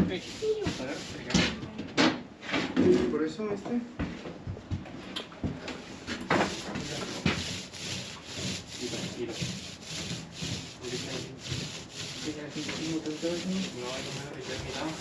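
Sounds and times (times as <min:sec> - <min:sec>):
paint roller rubbing on wall: 0:00.0 - 0:01.6, 0:06.0 - 0:15.0.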